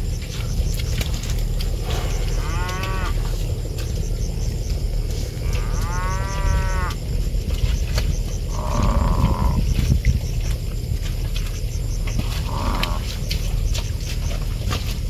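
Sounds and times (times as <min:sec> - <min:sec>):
low rumble: 0:00.0 - 0:15.0
water buffalo mooing: 0:01.7 - 0:03.4, 0:05.3 - 0:07.1, 0:08.3 - 0:09.7, 0:12.1 - 0:13.5.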